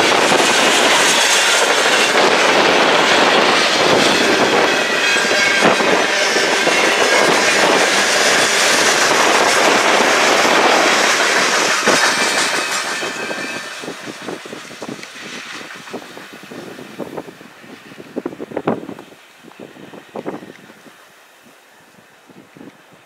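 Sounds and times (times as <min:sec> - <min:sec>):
wheel clacks over rail joints: 0:00.0 - 0:17.3
freight train rumbling past: 0:00.0 - 0:23.0.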